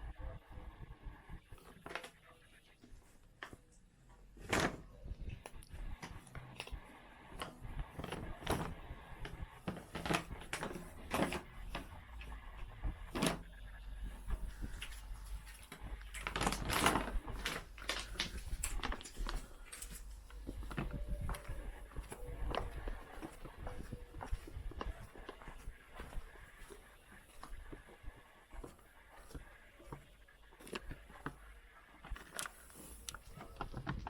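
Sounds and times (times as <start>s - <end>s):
cats crunching dry food: 5.3s - 12.4s, 14.0s - 34.0s.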